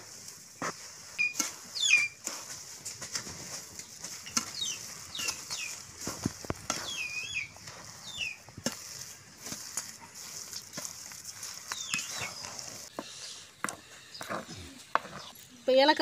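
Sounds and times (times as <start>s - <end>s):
bird chirping downward: 1.2s - 2.2s, 6.8s - 8.4s.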